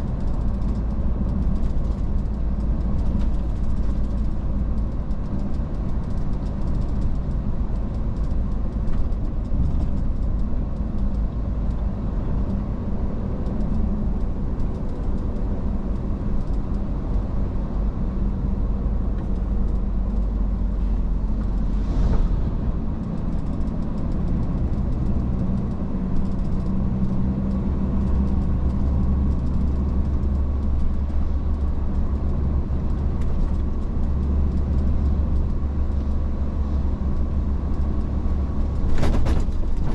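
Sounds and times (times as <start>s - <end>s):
truck engine and road noise: 0.0s - 39.9s
rush of noise: 21.3s - 24.2s.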